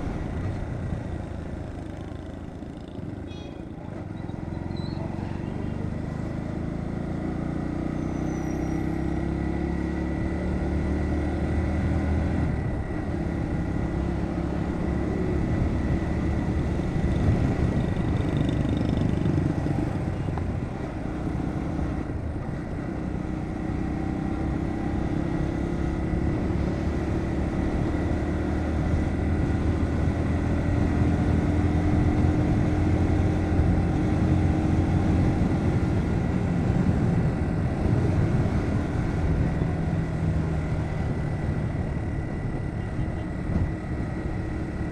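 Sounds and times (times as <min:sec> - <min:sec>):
motorcycle engine running: 0:00.0 - 0:07.7, 0:12.5 - 0:21.3
wind rushing over microphone: 0:15.2 - 0:20.7, 0:29.2 - 0:43.8.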